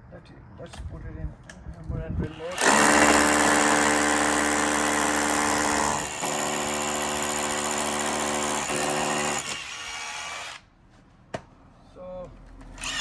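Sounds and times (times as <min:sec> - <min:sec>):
hammer drill boring into brick: 0:02.3 - 0:10.6, 0:12.8 - 0:13.0.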